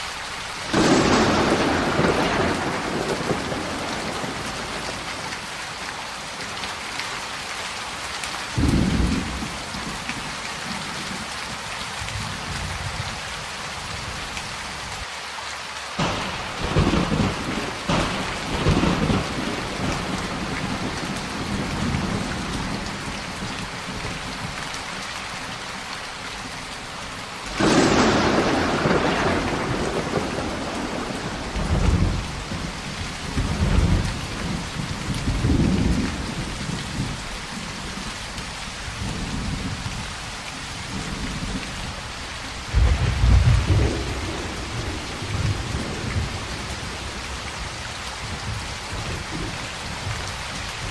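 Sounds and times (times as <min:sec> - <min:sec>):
heavy rain: 0:00.0 - 0:50.9
loud thunderclap: 0:00.7 - 0:05.1, 0:08.6 - 0:09.6, 0:16.0 - 0:22.9, 0:27.5 - 0:37.2, 0:42.7 - 0:49.5
rolling thunder: 0:00.7 - 0:05.3, 0:08.6 - 0:10.0, 0:16.0 - 0:24.6, 0:27.5 - 0:37.6, 0:42.6 - 0:50.2.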